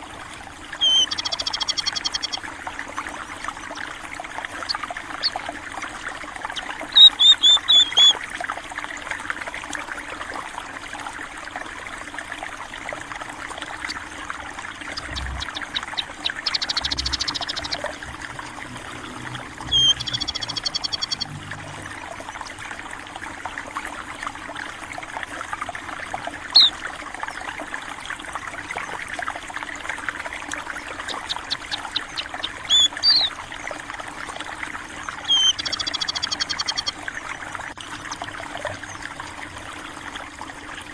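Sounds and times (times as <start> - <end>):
stream water trickling: 0.0 - 40.9
small birds chirping and trilling: 0.8 - 2.4, 4.5 - 5.5, 6.5 - 8.2, 14.8 - 21.9, 26.5 - 26.8, 30.9 - 33.4, 35.0 - 37.0.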